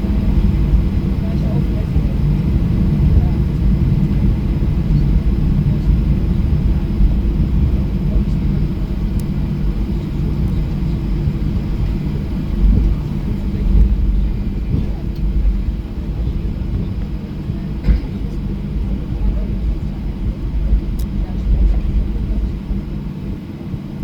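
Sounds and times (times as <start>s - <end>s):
airplane cabin engine rumble: 0.0s - 24.0s.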